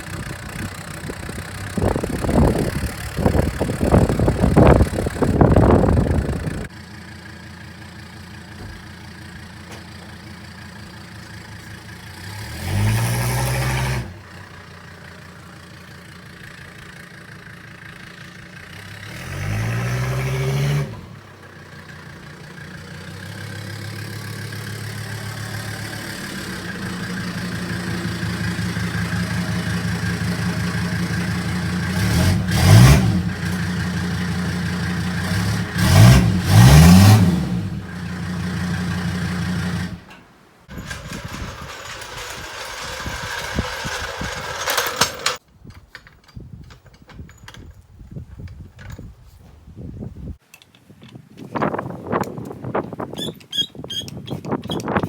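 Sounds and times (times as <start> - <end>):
diesel engine revving: 0.0 - 45.4.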